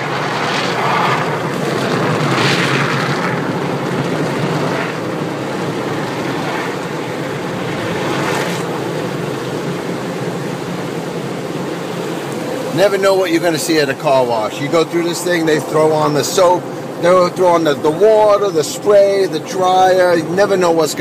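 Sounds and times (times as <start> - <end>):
car wash machinery rumble: 0.0 - 21.0.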